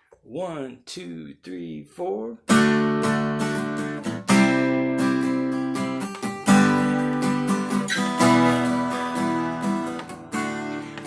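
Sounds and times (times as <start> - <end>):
acoustic guitar strumming chords: 2.4 - 11.0.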